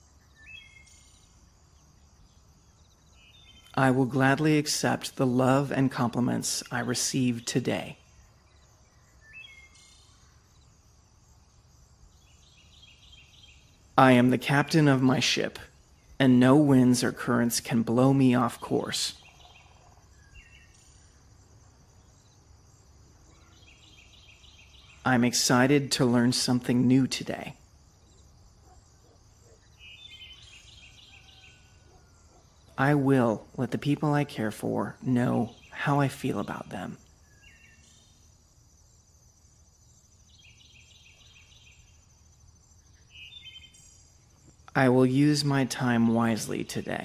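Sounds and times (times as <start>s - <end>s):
high insect-like tone: 0.0s - 3.8s, 36.6s - 44.9s
high insect-like hiss: 0.0s - 33.0s, 35.5s - 47.0s
birds chirping: 0.0s - 47.0s
low background noise: 0.0s - 47.0s.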